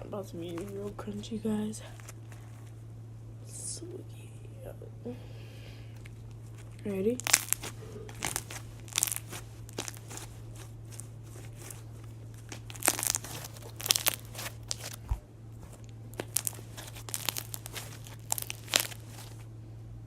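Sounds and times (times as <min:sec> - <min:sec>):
steady low hum: 0:00.0 - 0:20.0
slime crackling and popping: 0:06.2 - 0:19.5.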